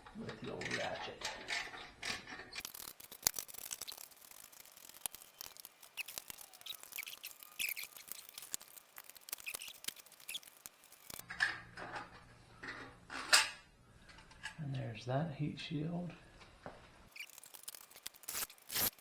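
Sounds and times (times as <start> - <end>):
short squeaks: 2.5 - 11.2, 17.1 - 19.0.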